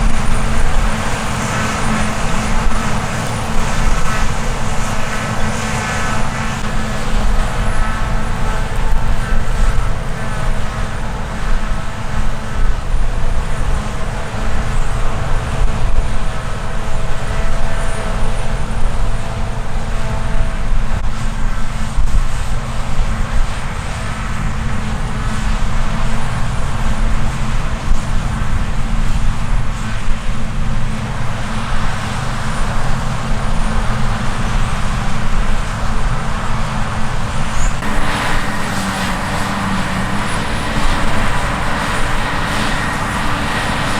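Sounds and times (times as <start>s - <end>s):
diesel engine rumble: 0.0s - 43.9s
high machine whine: 0.0s - 43.9s.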